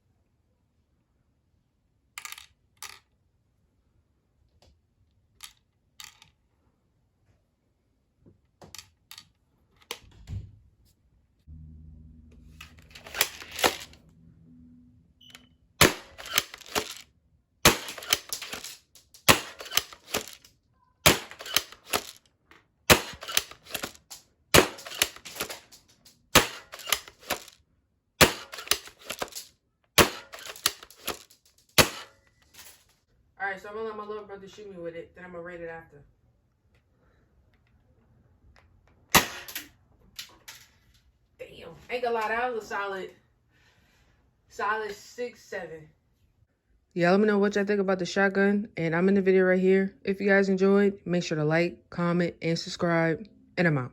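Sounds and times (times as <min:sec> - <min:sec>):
airsoft shotgun shot snapping: 0:15.8 - 0:16.5, 0:17.7 - 0:18.4, 0:19.3 - 0:20.3, 0:21.1 - 0:21.6, 0:22.9 - 0:23.8, 0:24.6 - 0:25.6, 0:26.4 - 0:27.4, 0:28.2 - 0:29.2, 0:30.0 - 0:30.8, 0:31.8 - 0:32.1
shotgun pump clicking: 0:15.8 - 0:17.0, 0:17.7 - 0:20.5, 0:21.1 - 0:22.2, 0:22.9 - 0:27.5, 0:28.2 - 0:29.4.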